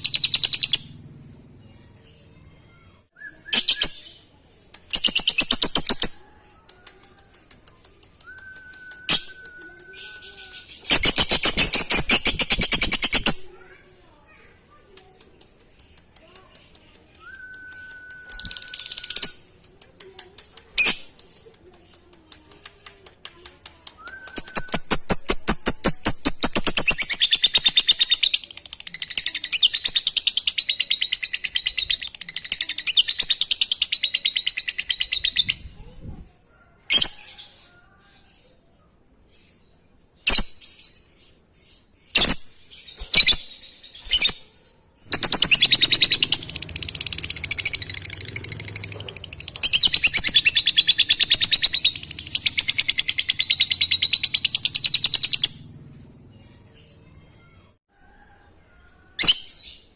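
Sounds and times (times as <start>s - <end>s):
bird chattering trill: 45.1s - 55.7s
bird ticking notes: 45.1s - 55.7s.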